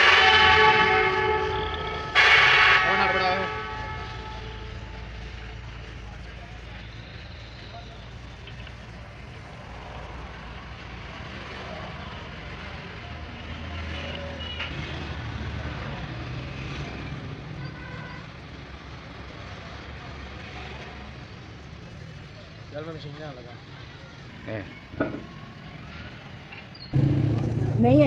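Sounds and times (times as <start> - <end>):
vehicle engine running: 23.8 - 28.0.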